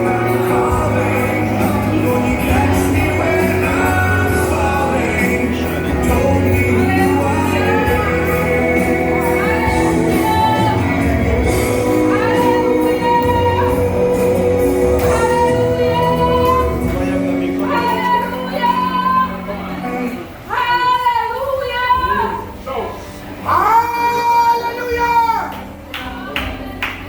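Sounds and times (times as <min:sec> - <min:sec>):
sustained instrumental chords: 0:00.0 - 0:23.6
voices singing: 0:00.0 - 0:27.0.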